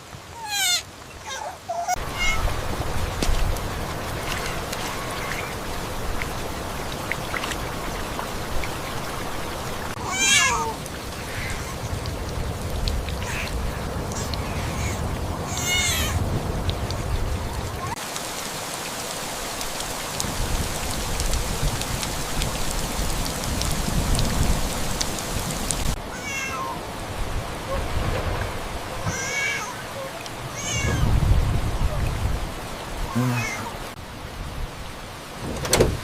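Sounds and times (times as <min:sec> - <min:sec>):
rain hissing: 0:00.0 - 0:36.0
cat meowing: 0:00.4 - 0:02.5, 0:10.0 - 0:10.8, 0:14.1 - 0:16.2, 0:26.1 - 0:26.8, 0:29.0 - 0:29.8, 0:30.5 - 0:31.1.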